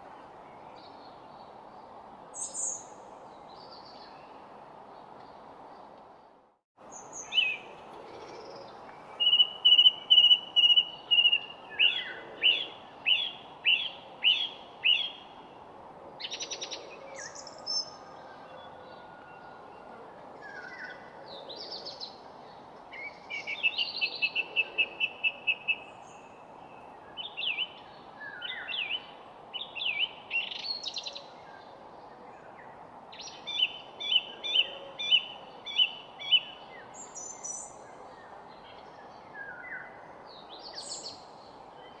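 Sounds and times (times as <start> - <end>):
songbirds singing: 6.8 - 15.4, 16.2 - 42.0
steady background hiss: 19.6 - 42.0.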